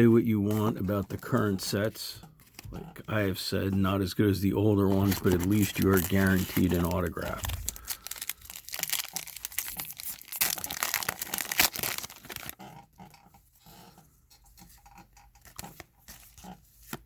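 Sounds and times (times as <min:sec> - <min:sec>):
card pack wrapper tearing and crinkling: 0:04.9 - 0:12.6.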